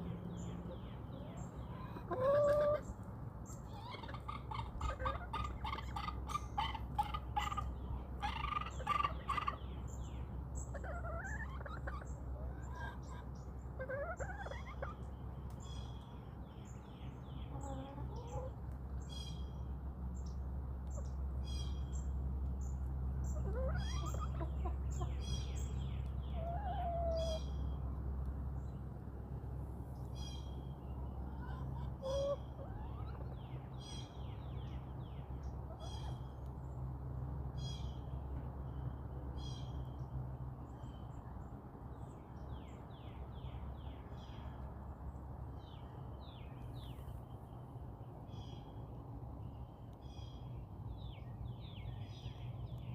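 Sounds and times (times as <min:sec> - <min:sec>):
small birds chirping: 0:00.0 - 0:52.9
chickens clucking: 0:00.2 - 0:09.9, 0:10.6 - 0:16.4, 0:17.4 - 0:19.0, 0:22.4 - 0:28.0, 0:30.1 - 0:36.6.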